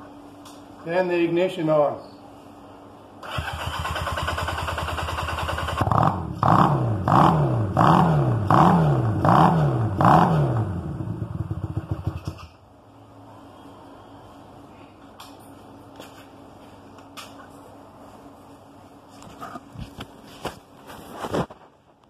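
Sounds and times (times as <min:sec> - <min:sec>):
motorcycle engine cranking: 0:03.2 - 0:06.0, 0:11.4 - 0:12.6
motorcycle engine revving: 0:03.2 - 0:12.6.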